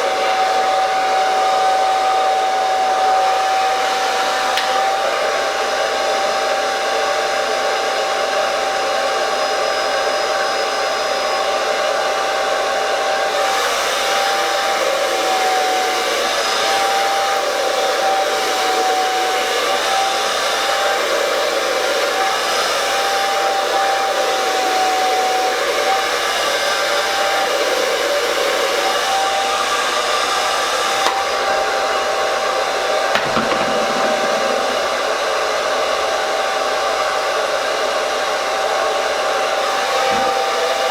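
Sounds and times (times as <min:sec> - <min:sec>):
hair dryer running: 0:00.0 - 0:40.9
brief knock: 0:33.1 - 0:35.2.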